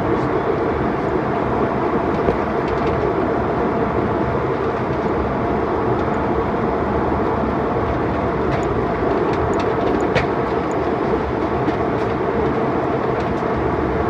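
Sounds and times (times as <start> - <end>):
airliner cabin roar: 0.0 - 14.0.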